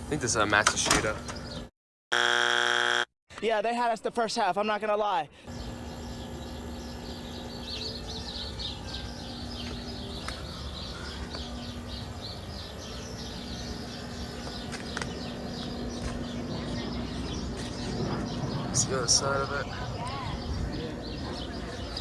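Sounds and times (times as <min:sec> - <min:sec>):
birds chirping: 0:00.0 - 0:01.7, 0:05.4 - 0:22.0
air conditioner humming: 0:05.5 - 0:22.0.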